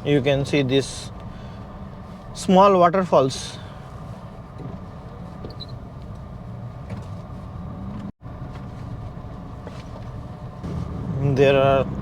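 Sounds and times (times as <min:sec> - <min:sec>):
road and engine noise in car: 0:00.0 - 0:12.0.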